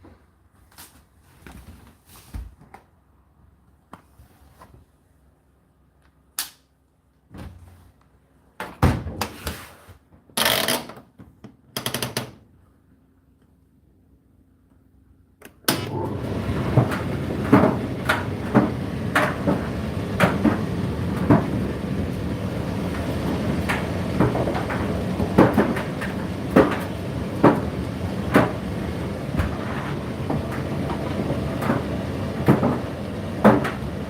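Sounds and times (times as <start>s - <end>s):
tumble dryer drum and fan: 15.7s - 34.0s.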